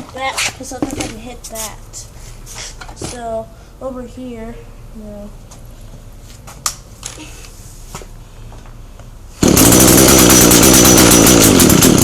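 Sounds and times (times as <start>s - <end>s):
string trimmer engine buzzing: 9.4s - 12.0s.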